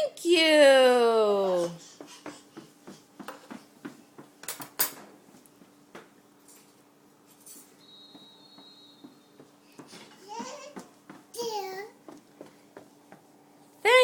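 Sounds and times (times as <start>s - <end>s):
dishes and cutlery clinking: 4.4s - 5.2s.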